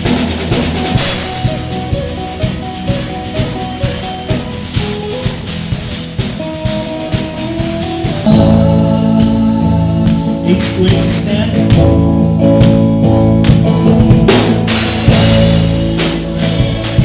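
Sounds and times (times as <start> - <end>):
shaken percussion: 0.0 - 12.0
worship band playing: 0.0 - 17.0
person singing: 6.5 - 12.8, 14.6 - 17.0.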